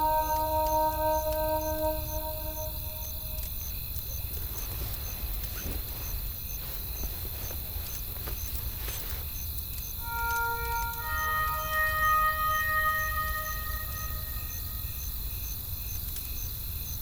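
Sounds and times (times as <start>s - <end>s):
faint high chirp: 0.0s - 3.5s, 10.0s - 15.0s.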